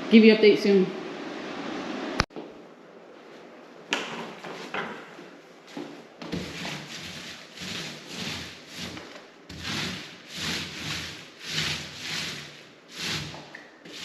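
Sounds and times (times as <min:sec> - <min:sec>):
paint roller rubbing on wall: 0:06.2 - 0:14.0.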